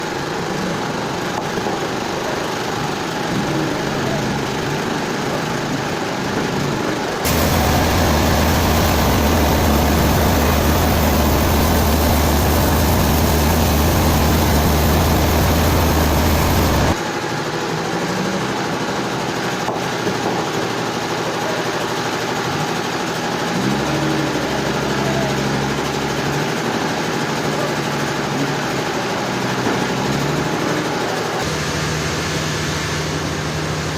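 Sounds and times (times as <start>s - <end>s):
sawmill machinery humming: 7.2s - 17.0s, 27.8s - 33.9s.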